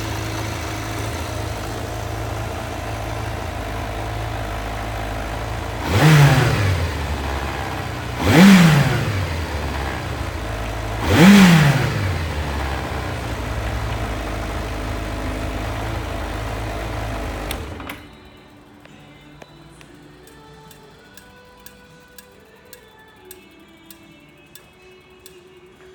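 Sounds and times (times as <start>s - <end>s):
motorcycle engine idling and revving: 0.0s - 19.2s.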